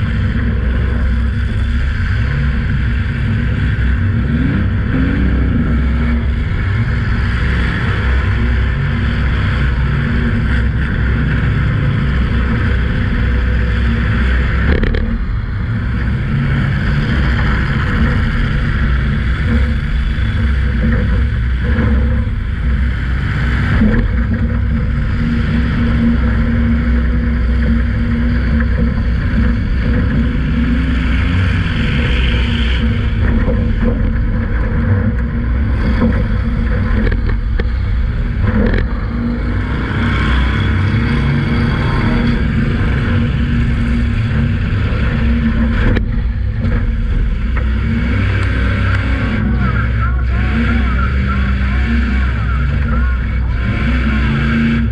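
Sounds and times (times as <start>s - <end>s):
car engine revving: 0.0s - 54.9s.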